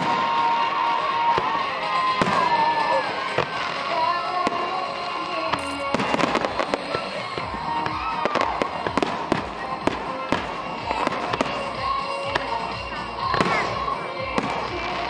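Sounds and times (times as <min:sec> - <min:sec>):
fireworks bangs and crackling: 0:00.0 - 0:15.0
music playing: 0:00.0 - 0:15.0.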